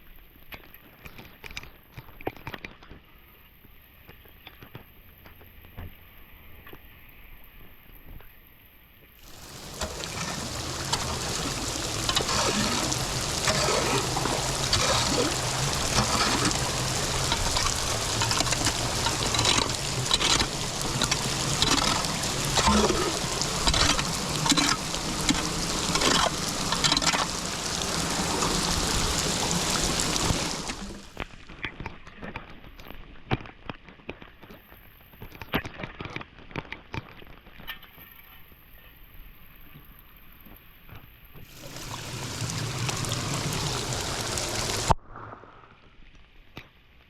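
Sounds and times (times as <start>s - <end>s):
water rushing and splashing: 9.2s - 31.6s, 41.4s - 45.8s.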